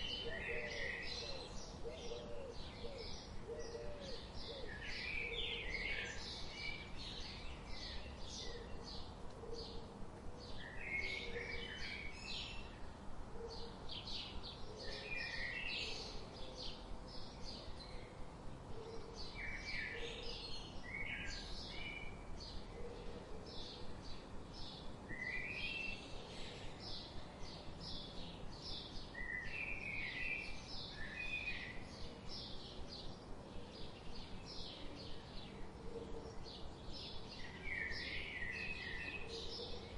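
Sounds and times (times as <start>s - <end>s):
songbirds chirping: 0.0s - 39.9s
steady background hiss: 0.0s - 39.9s.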